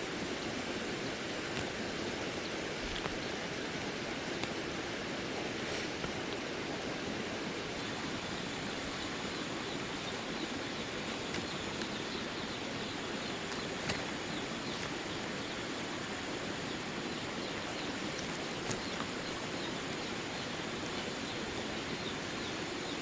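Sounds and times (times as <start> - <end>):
outdoor background hiss: 0.0 - 23.0
faint clicks and taps: 10.4 - 15.6, 17.4 - 21.1.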